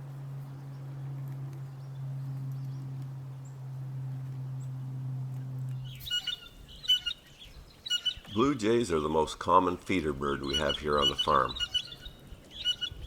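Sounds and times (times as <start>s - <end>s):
low hum: 0.0s - 13.0s
blue jay calls: 5.8s - 13.0s.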